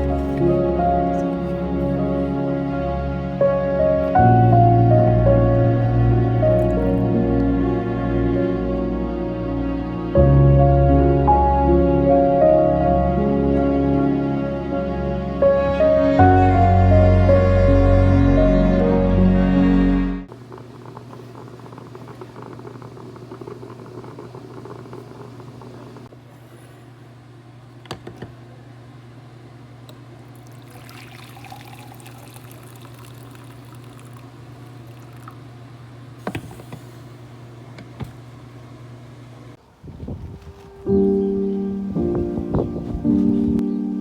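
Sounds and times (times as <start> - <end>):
steady low hum: 0.0 - 44.0
liquid pouring and gurgling: 30.3 - 35.6.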